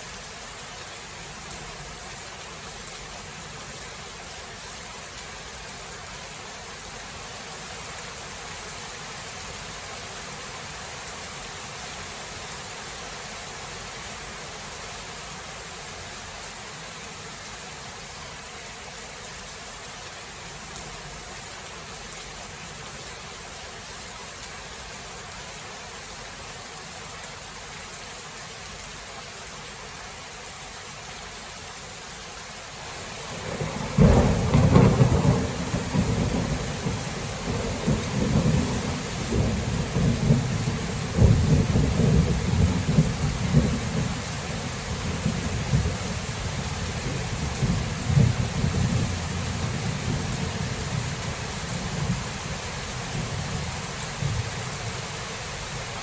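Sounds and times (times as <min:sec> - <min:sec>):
steady rain hiss: 0:00.0 - 0:56.0
thunderclap rumbling: 0:33.3 - 0:52.3.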